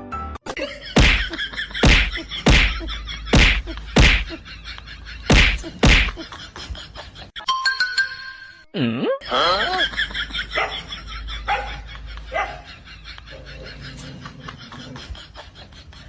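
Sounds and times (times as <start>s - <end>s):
loud whacks: 1.0s - 4.4s, 5.3s - 6.2s.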